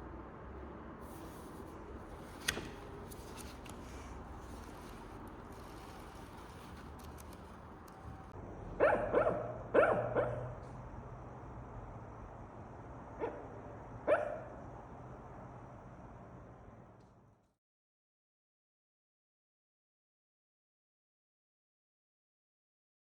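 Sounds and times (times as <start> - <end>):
dog barking: 8.8 - 10.6, 13.2 - 14.6.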